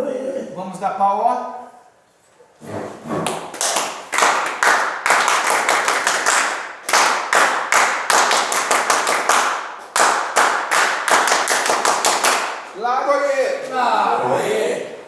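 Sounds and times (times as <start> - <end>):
group hand clapping: 3.2 - 12.8.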